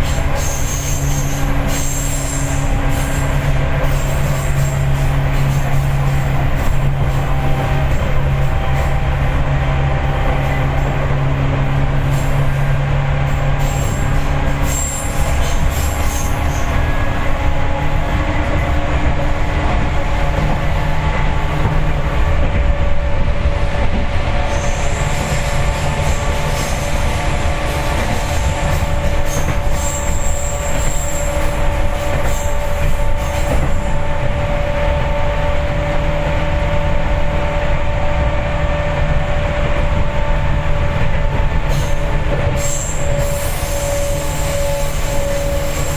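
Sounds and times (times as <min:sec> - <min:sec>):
high wheel squeal: 0:00.0 - 0:09.2, 0:12.0 - 0:18.7, 0:24.5 - 0:35.8, 0:41.6 - 0:45.9
train wheels rumbling on rail: 0:00.0 - 0:45.9.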